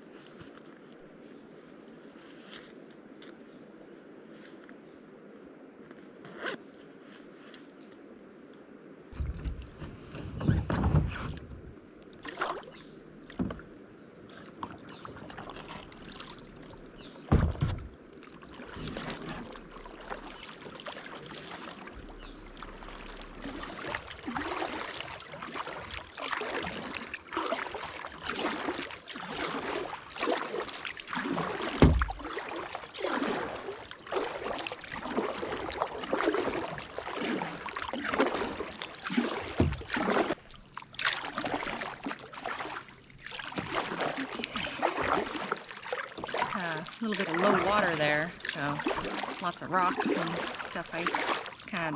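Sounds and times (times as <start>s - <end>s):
paddle splashing in water: 9.1s - 51.9s
dull knocks: 17.3s - 17.9s.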